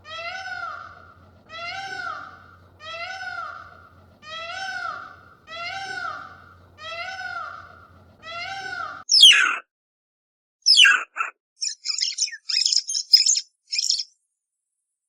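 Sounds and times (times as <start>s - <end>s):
cat meowing: 0.0s - 9.0s.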